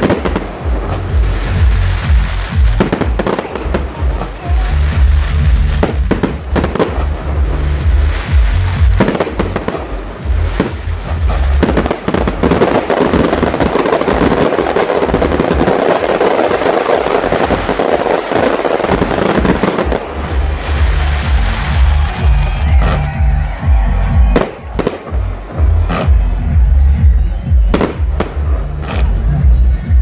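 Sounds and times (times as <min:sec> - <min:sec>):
fireworks bangs: 0:00.0 - 0:29.3
crackling fireworks bursts: 0:00.0 - 0:29.6
music playing: 0:00.0 - 0:30.0.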